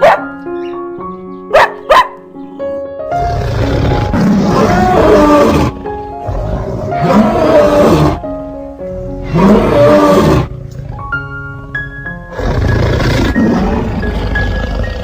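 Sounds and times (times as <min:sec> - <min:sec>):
background music with plucked notes: 0:00.0 - 0:15.0
big cat roaring: 0:03.2 - 0:08.2, 0:09.2 - 0:11.0, 0:12.3 - 0:15.0.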